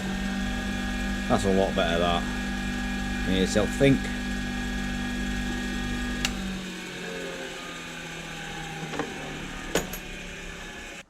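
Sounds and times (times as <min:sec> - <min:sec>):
bench grinder running: 0:00.0 - 0:11.0.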